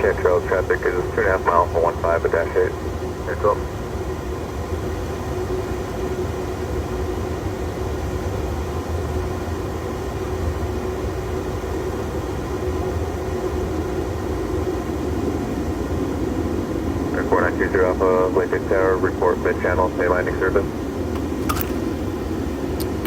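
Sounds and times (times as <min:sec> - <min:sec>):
aircraft engines idling: 0:00.0 - 0:04.6, 0:10.8 - 0:23.0.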